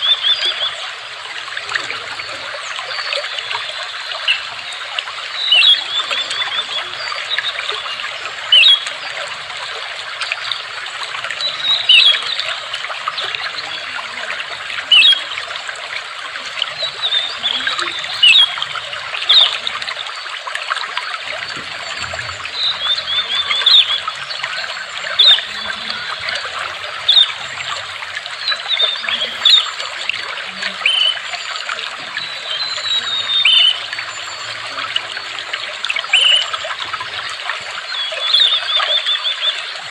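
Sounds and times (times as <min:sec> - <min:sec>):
water trickling and gurgling: 0:00.0 - 0:39.9
bird chirping and trilling: 0:16.2 - 0:20.3, 0:21.1 - 0:35.2.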